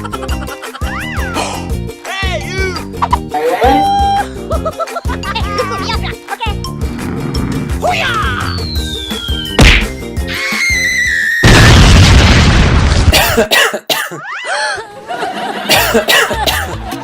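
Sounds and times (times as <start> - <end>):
background music: 0.0 - 11.5, 15.0 - 17.0
cartoonish vocal sounds: 2.5 - 4.3
falling whistle: 8.2 - 11.5
loud boom: 11.4 - 13.1.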